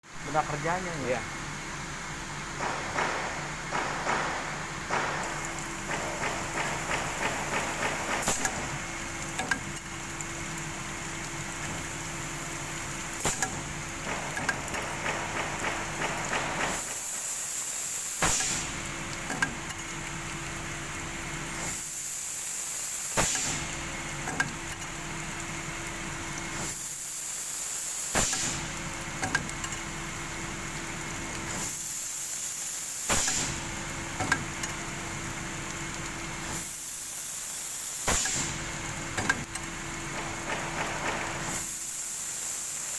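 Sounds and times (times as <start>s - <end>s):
steady machine hum: 0.0s - 17.2s
sharp machine knock: 2.5s - 8.8s, 13.2s - 17.2s, 18.2s - 18.7s, 28.2s - 29.4s, 33.1s - 34.4s, 38.1s - 39.5s, 40.1s - 41.6s
machine hissing: 2.6s - 9.5s, 11.7s - 18.9s, 21.5s - 23.8s, 26.6s - 28.8s, 31.5s - 33.9s, 36.4s - 38.9s, 40.1s - 42.9s.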